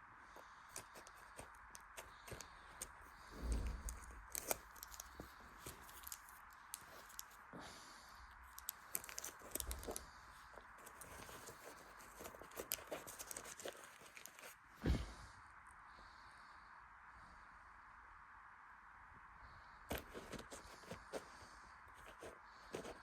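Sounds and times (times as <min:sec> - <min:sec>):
cat rummaging through belongings: 0:00.4 - 0:07.5, 0:08.4 - 0:15.2, 0:19.9 - 0:23.0.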